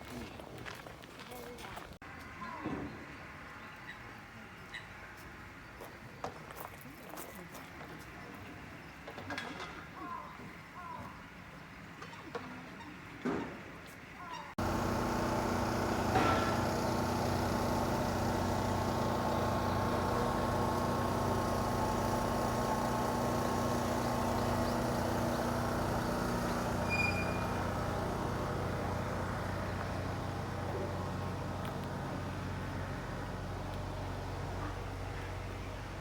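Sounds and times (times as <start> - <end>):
motor hum: 14.6 - 36.0.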